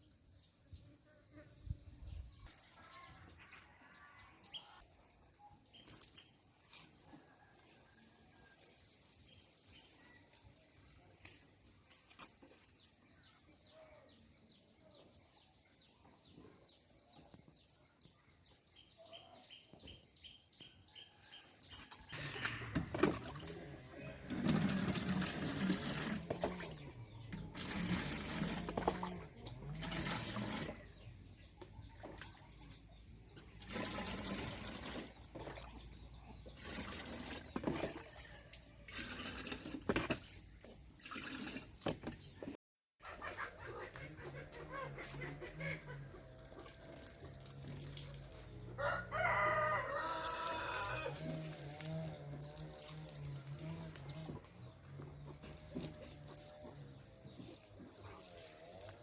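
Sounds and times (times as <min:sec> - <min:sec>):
water gushing: 0:22.2 - 0:31.1, 0:33.5 - 0:35.6, 0:36.4 - 0:42.3, 0:45.6 - 0:48.7, 0:49.4 - 0:54.3, 0:55.4 - 0:59.0.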